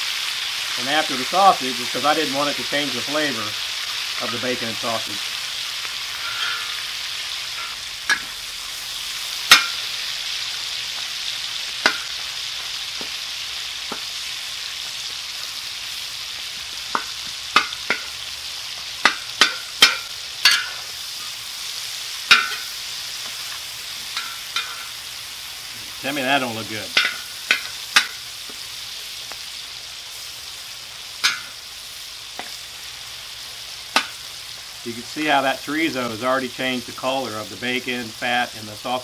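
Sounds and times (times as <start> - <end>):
chorizo sizzling in grease: 0.0 - 39.0
metal spatula scraping metal: 6.1 - 6.9.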